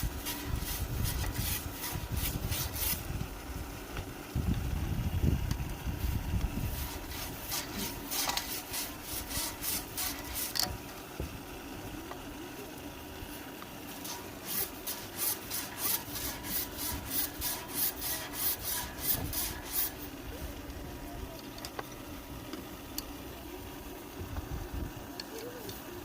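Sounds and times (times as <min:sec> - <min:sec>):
rubbing strokes: 0:00.0 - 0:03.0, 0:06.0 - 0:10.7, 0:13.9 - 0:20.2.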